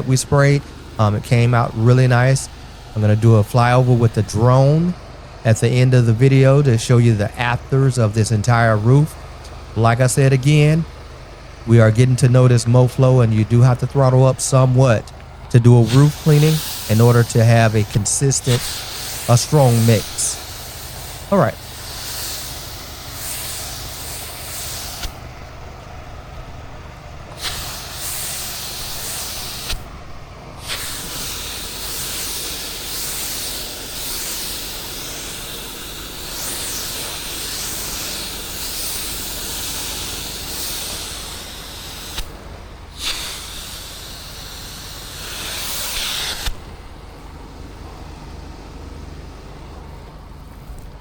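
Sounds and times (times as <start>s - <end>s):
spray hissing: 0.0s - 9.6s, 13.4s - 47.2s
steady low hum: 0.0s - 51.0s.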